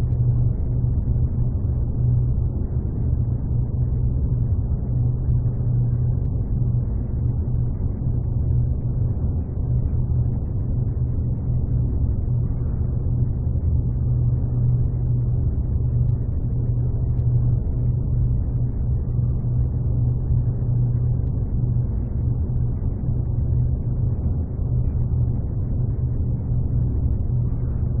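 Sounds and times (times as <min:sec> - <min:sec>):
low mechanical rumble: 0:00.0 - 0:28.0.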